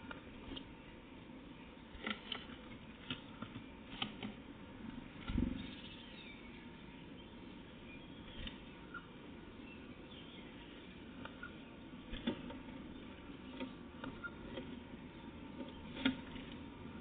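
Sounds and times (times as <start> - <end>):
faint high bird chirps: 5.5 - 11.8.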